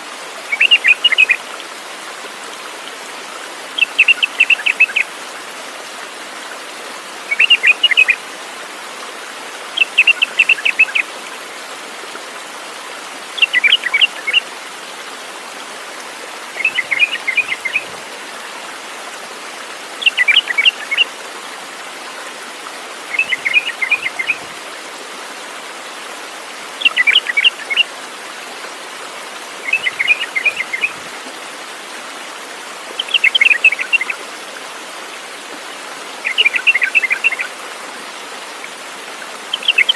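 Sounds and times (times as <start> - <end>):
songbird chirping: 0.5 - 1.4, 7.3 - 8.2, 16.6 - 17.9, 23.1 - 24.4, 29.6 - 31.0, 36.2 - 37.5.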